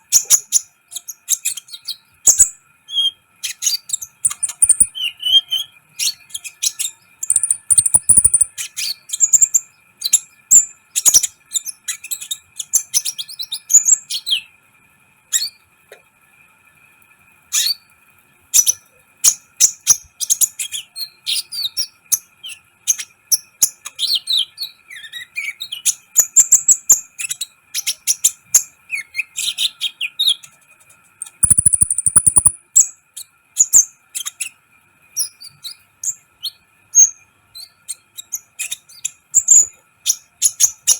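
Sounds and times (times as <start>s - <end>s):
bird chirping and trilling: 0.1s - 12.4s, 31.2s - 33.0s
fast clicking bursts: 7.3s - 8.5s, 31.2s - 32.6s.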